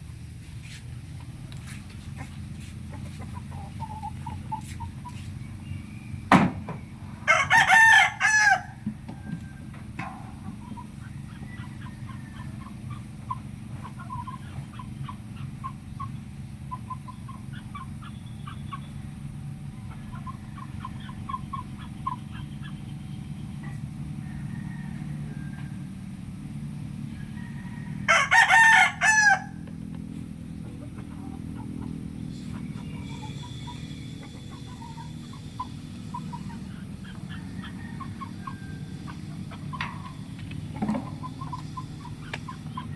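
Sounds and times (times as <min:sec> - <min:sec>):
steady low hum: 0:00.0 - 0:42.9
clucking: 0:02.0 - 0:05.4, 0:09.1 - 0:19.0, 0:19.8 - 0:23.0, 0:29.7 - 0:42.9
rooster crowing: 0:07.2 - 0:09.9, 0:24.2 - 0:26.0, 0:27.1 - 0:29.7, 0:37.3 - 0:39.4.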